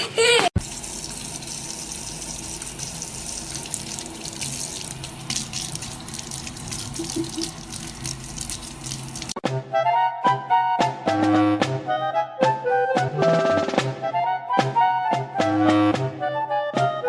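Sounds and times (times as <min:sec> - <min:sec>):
water running from a tap: 0:00.3 - 0:09.4.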